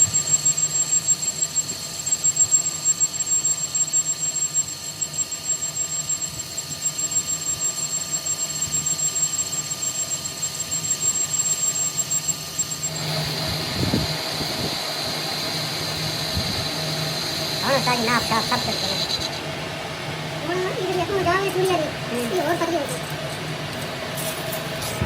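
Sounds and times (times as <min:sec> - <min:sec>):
high squealing whine: 0:00.0 - 0:25.0
machinery humming: 0:10.8 - 0:25.0.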